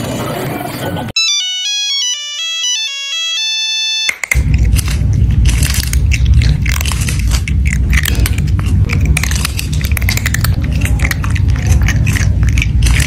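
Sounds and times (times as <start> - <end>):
loud chewing and crunching: 4.2 - 13.0
low rumble: 4.4 - 13.0.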